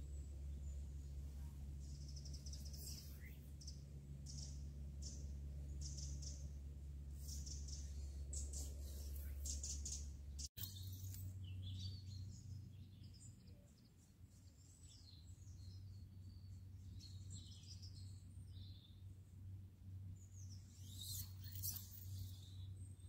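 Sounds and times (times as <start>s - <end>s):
low steady rumble: 0.0s - 23.0s
small birds chirping: 0.0s - 23.0s.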